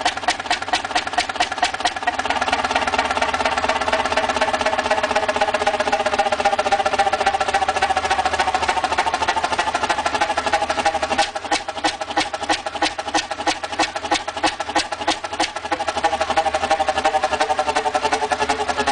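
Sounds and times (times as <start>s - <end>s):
large engine clattering rhythmically: 0.0s - 18.9s.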